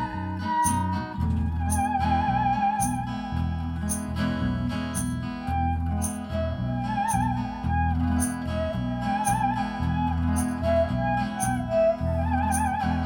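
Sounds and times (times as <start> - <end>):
lead melody with vibrato: 0.0 - 13.0
pulsing bass line: 0.0 - 13.0
percussion striking: 3.8 - 4.2, 4.9 - 5.2, 6.0 - 6.2, 10.4 - 10.6.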